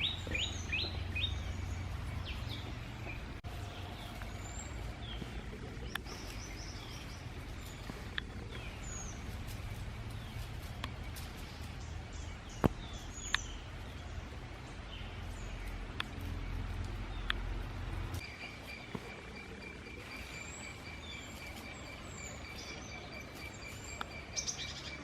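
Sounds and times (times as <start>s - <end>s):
steady low rumble: 0.0s - 24.8s
birds chirping and whistling: 0.0s - 25.0s
sharp clicks: 15.6s - 18.3s.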